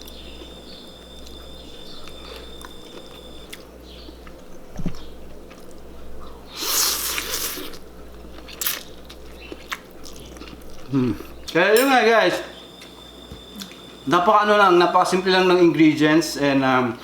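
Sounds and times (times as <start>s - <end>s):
chewing and biting clicks: 0.0s - 11.6s
steady low hum: 0.0s - 17.0s.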